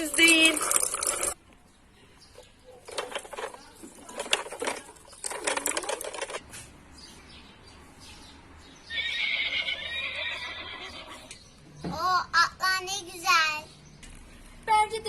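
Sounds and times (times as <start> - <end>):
toys rattling and clattering: 0.0 - 1.4, 2.4 - 6.5
horse whinny: 8.9 - 11.3.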